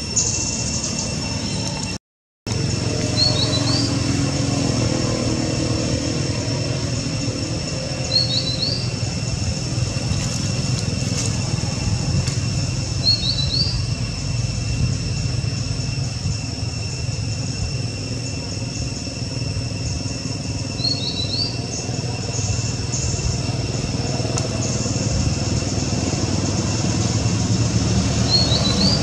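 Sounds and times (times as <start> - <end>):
high-pitched drone: 0.0 - 29.0
low rumble: 2.5 - 20.8
bird chirping: 3.0 - 4.1, 7.1 - 9.3, 12.8 - 19.2, 19.8 - 23.4, 28.2 - 29.0.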